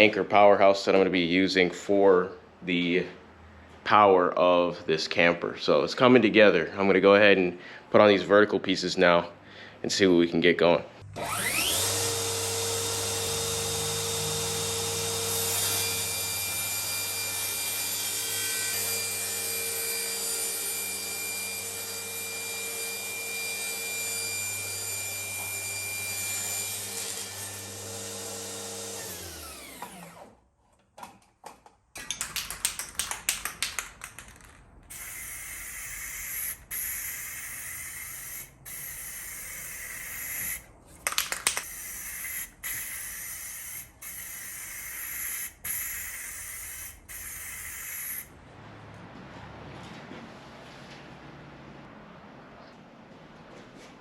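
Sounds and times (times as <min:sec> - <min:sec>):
power tool motor spinning: 0:11.0 - 0:17.8, 0:22.8 - 0:30.4, 0:34.9 - 0:40.6, 0:41.5 - 0:48.3.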